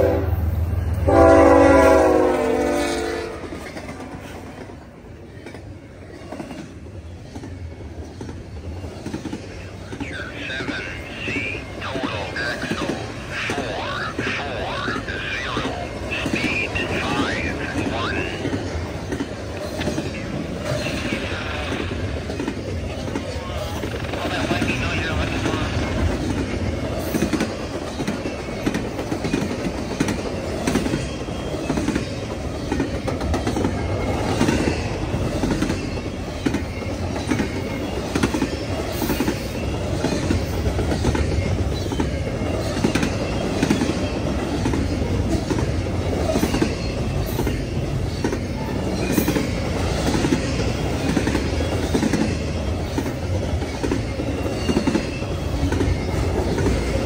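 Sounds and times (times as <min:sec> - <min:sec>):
freight train cars rolling: 0:00.0 - 0:57.0.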